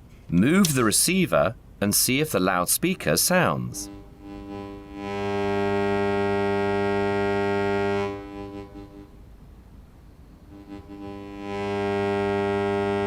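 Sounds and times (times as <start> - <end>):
loudspeaker low buzzing tone: 3.4 - 9.5, 10.4 - 13.0.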